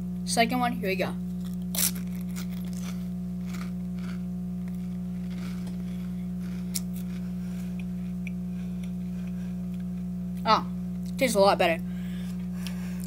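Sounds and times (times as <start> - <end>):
low electrical hum: 0.0 - 13.0
person chewing crunchy snack: 1.3 - 10.0.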